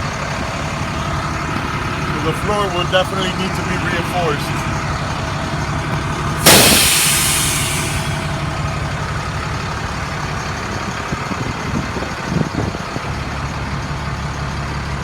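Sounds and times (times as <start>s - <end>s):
diesel engine idling: 0.0s - 15.0s
loud hiss: 6.4s - 8.6s.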